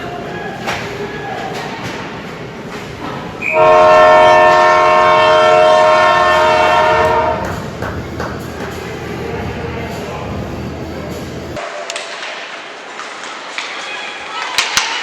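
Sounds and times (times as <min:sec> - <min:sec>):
arena horn blast: 0:03.4 - 0:07.5.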